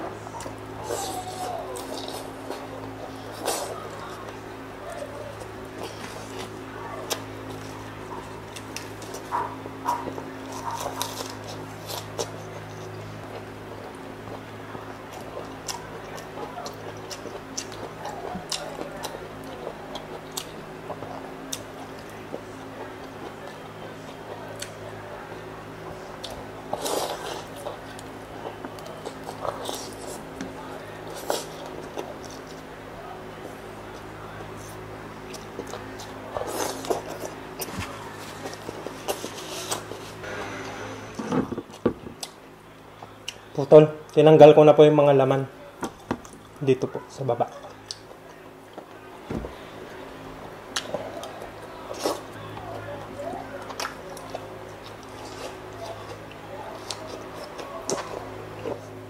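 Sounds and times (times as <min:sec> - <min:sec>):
steady low hum: 0:00.0 - 0:59.0
crispy food crunching: 0:00.3 - 0:25.3, 0:25.9 - 0:40.9, 0:45.9 - 0:59.0
chewing with wet mouth smacks: 0:05.3 - 0:24.9, 0:47.5 - 0:49.0, 0:53.6 - 0:59.0.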